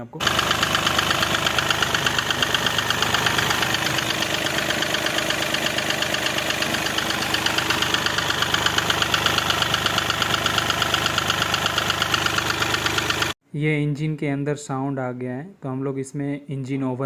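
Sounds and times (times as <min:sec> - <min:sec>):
diesel engine idling: 0:00.2 - 0:13.4
rhythmic engine knock: 0:00.2 - 0:13.4.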